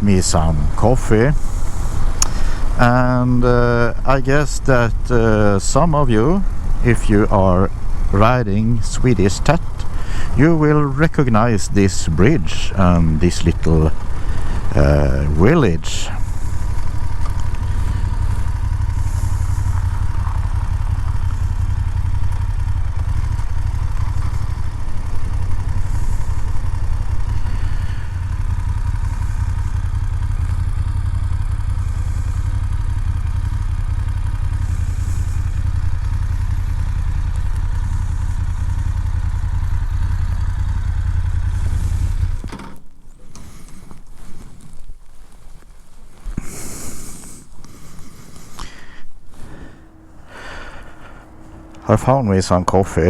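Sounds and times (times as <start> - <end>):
wind rumble: 0.0 - 33.7
motorcycle engine running: 0.0 - 53.0.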